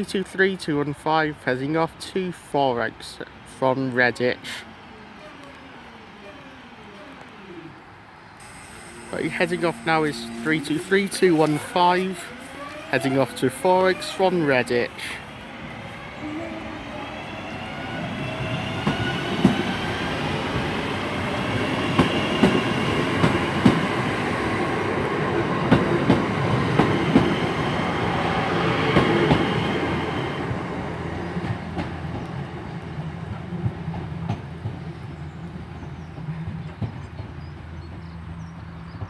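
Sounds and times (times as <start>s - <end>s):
electric train whine: 8.4s - 36.8s.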